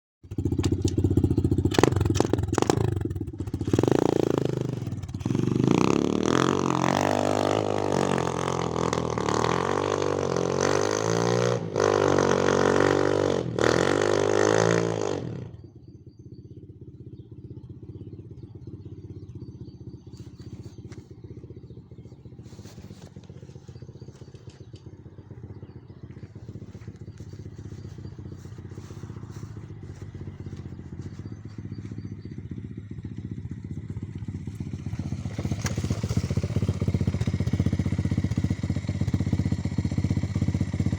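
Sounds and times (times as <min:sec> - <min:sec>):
motorcycle engine revving: 0:00.2 - 0:40.9.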